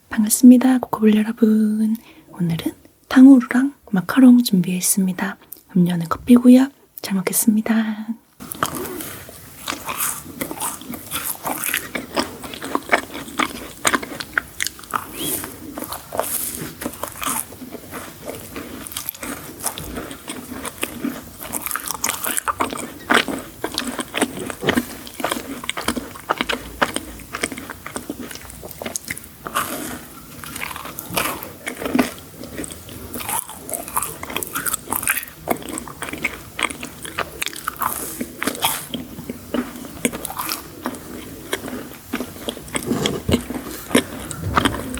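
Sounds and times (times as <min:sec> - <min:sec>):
chewing crunchy sweets: 0:08.4 - 0:44.9.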